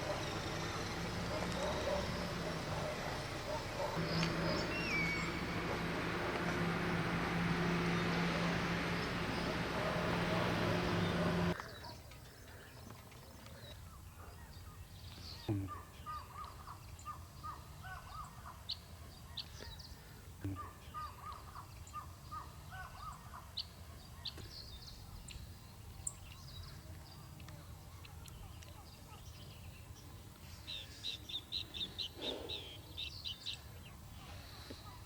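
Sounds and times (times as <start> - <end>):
loud noise with low hum: 0.0 - 11.6
high bird chirps: 4.0 - 5.6
birds cawing: 20.5 - 23.6.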